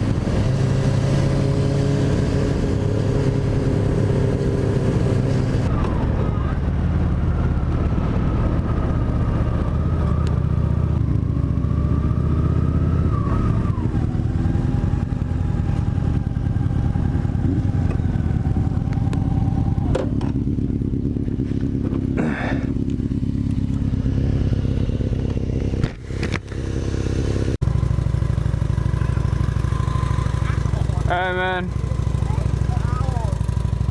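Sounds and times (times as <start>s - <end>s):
motorcycle engine running: 0.0s - 33.9s
wind rushing on microphone: 5.6s - 10.4s.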